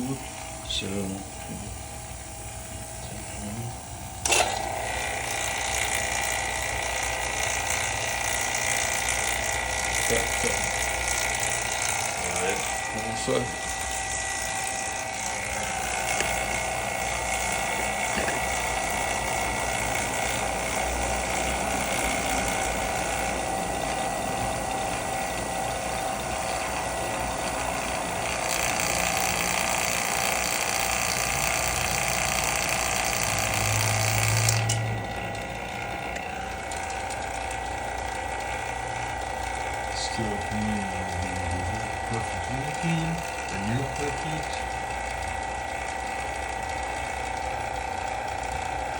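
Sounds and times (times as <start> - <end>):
vacuum pump rattling and hissing: 0.0 - 48.9.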